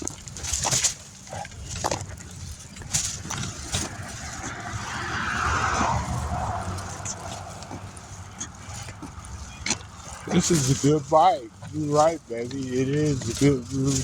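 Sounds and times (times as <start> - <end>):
wind rumble on microphone: 0.0 - 12.2
car passing: 3.0 - 10.6.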